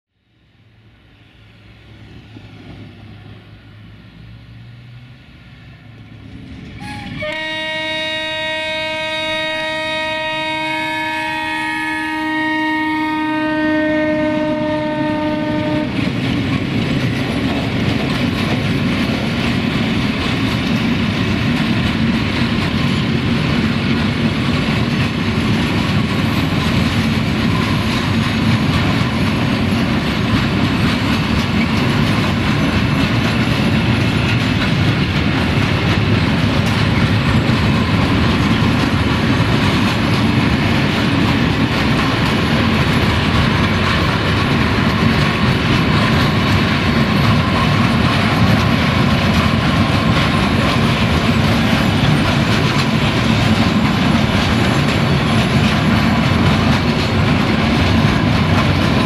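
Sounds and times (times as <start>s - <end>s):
locomotive engine rumbling: 1.4s - 59.0s
train wheels clattering on rails: 6.0s - 59.0s
locomotive horn blast: 6.8s - 16.0s.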